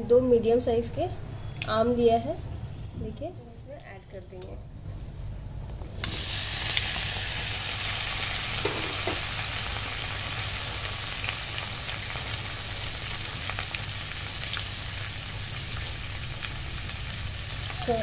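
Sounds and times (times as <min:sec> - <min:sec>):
mango sizzling in oil: 0:05.2 - 0:18.0.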